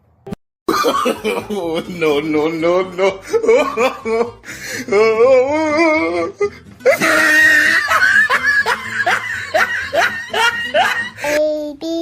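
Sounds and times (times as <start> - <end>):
loud human laughter: 6.8 - 11.2.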